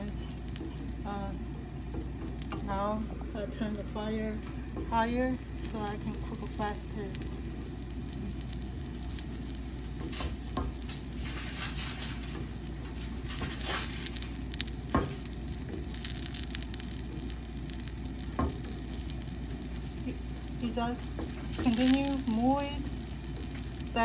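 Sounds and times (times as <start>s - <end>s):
food sizzling in frying pan: 0.0s - 24.0s.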